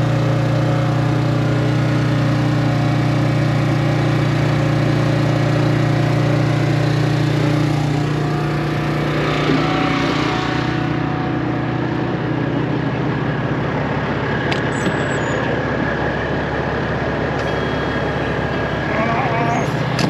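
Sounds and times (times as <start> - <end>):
truck diesel engine idling: 0.0 - 9.4, 10.7 - 20.0
faint high tone: 17.4 - 19.8.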